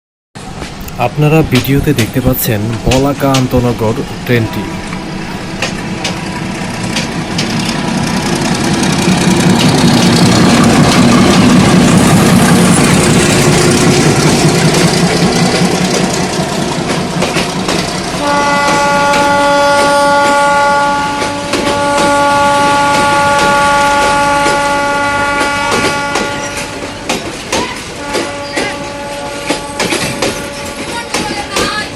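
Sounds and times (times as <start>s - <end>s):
train wheels clattering: 0.6s - 31.9s
train horn blast: 4.3s - 6.8s, 18.2s - 26.8s, 27.6s - 31.2s.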